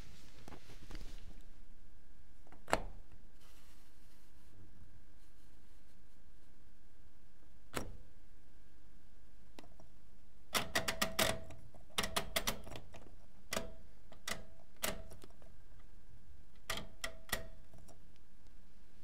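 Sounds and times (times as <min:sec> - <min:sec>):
faint steady background noise: 0:00.0 - 0:19.0
washing machine clicking: 0:10.5 - 0:15.3.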